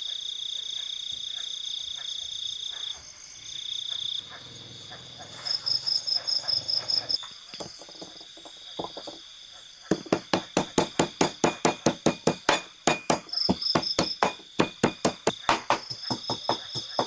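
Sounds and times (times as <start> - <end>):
insects chirping and trilling: 0.0 - 17.0
light knocks: 7.5 - 9.2, 9.9 - 17.0.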